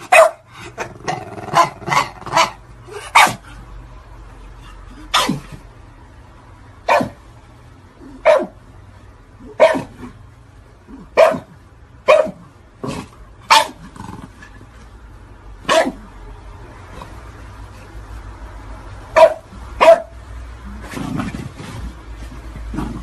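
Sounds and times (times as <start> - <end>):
dog barking: 0.0 - 0.4, 1.5 - 3.4, 5.1 - 5.5, 6.8 - 7.2, 8.2 - 8.6, 9.5 - 10.0, 11.1 - 12.5, 13.5 - 13.8, 15.6 - 16.0, 19.1 - 20.2.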